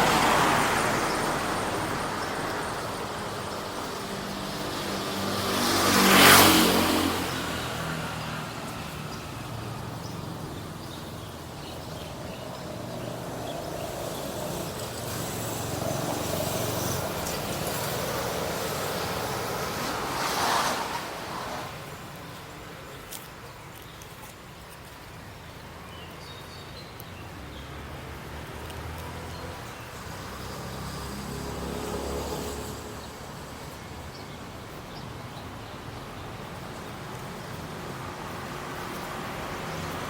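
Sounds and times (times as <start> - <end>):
vehicle passing close: 0.0 - 22.2, 27.4 - 33.9.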